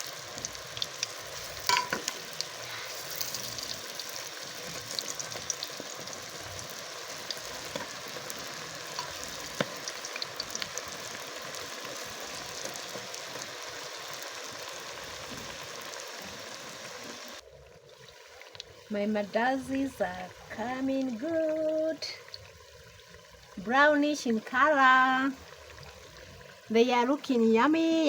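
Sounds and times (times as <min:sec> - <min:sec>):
small pops of frying oil: 0:00.0 - 0:16.4, 0:18.0 - 0:18.8
dough sizzling in hot oil: 0:00.0 - 0:28.0.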